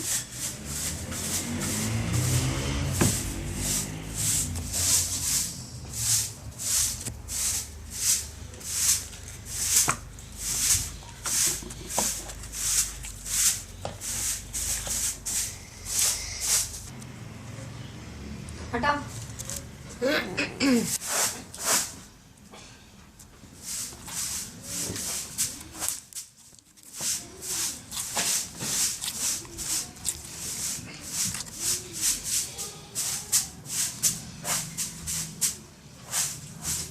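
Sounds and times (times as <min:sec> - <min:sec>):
slime squishing: 0:24.8 - 0:34.0.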